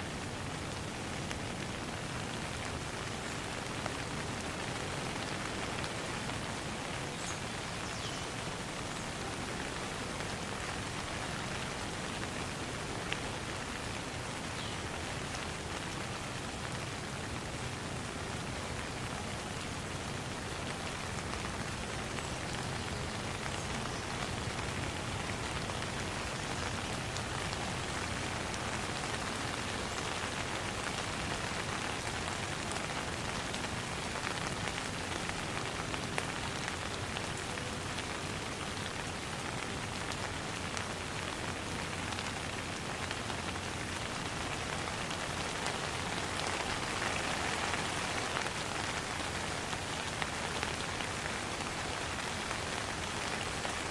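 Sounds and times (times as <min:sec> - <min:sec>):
rain pattering on water: 0:00.0 - 0:53.9.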